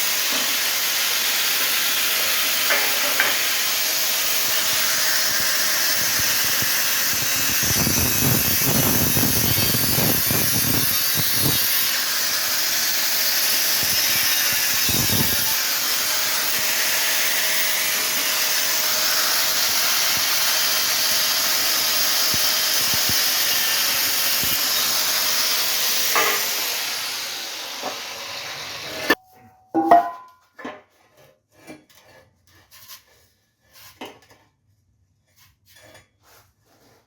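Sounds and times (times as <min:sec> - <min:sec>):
power tool cutting steel pipe: 0:00.0 - 0:29.2.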